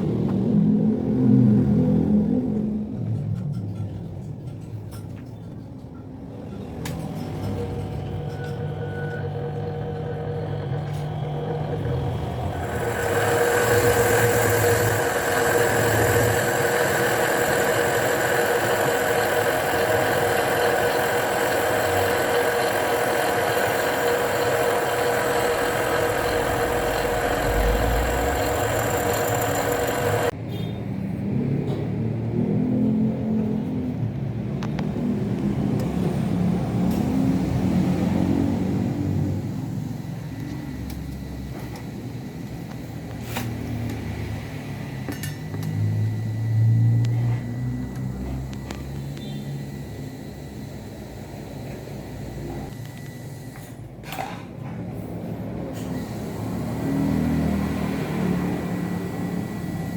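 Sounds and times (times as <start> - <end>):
table saw running: 7.3 - 30.4.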